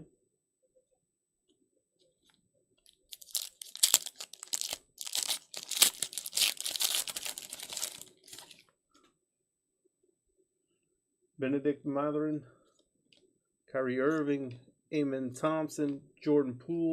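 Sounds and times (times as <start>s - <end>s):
foil wrapper tearing and crinkling: 3.1s - 8.6s.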